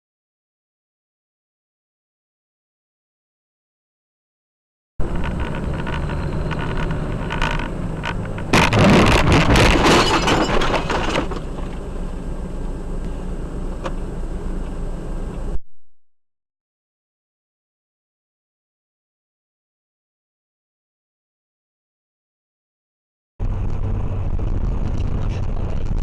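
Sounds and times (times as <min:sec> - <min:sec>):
car collision crunching: 0:05.0 - 0:12.2
car road and engine rumble: 0:05.0 - 0:15.6, 0:23.4 - 0:26.0.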